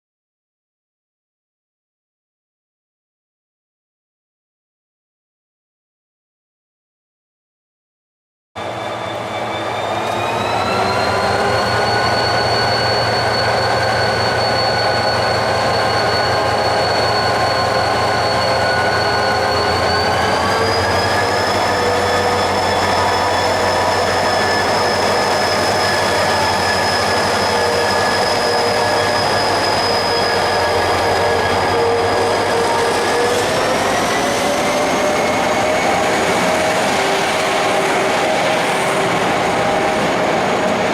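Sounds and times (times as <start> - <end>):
train running noise: 8.6 - 40.9
train whine: 8.6 - 40.9.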